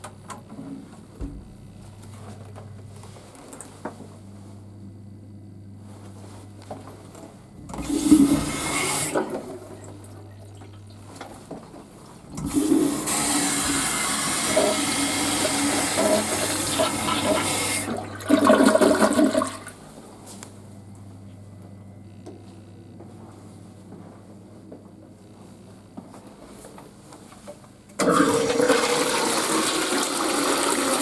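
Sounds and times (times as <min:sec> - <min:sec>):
toilet flushing: 0:07.7 - 0:11.0, 0:12.3 - 0:19.8, 0:28.0 - 0:31.0.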